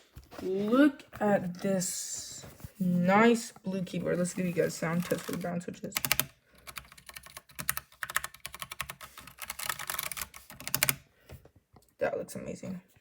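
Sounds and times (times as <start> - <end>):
mechanical keyboard typing: 4.7 - 11.0.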